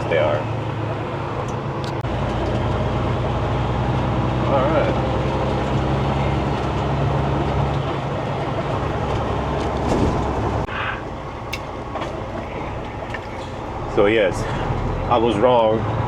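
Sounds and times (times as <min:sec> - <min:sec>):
road noise: 0:00.0 - 0:16.0
truck engine drone: 0:00.0 - 0:16.0.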